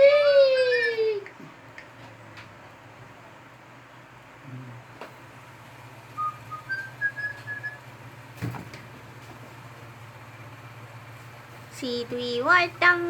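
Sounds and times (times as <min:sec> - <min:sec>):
whistled phrase: 0:06.2 - 0:07.8.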